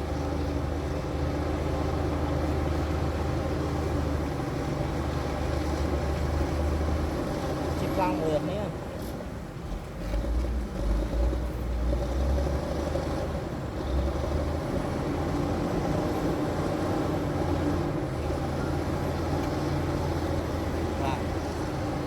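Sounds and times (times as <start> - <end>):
bulldozer diesel engine rumbling: 9.3 - 22.0.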